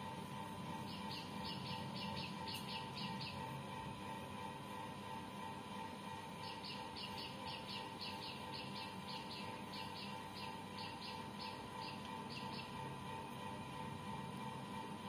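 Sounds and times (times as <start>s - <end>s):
small bird chirping: 0.8s - 3.5s, 6.4s - 12.8s.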